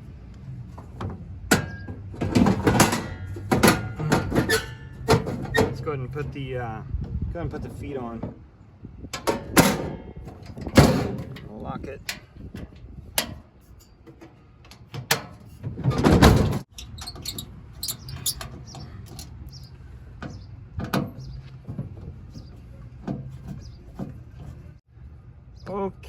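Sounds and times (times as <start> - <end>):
metal clicks and knocks: 9.2 - 19.6.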